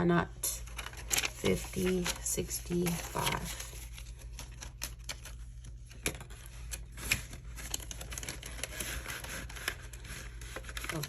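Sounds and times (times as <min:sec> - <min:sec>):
paper rustling and crinkling: 0:00.6 - 0:11.0.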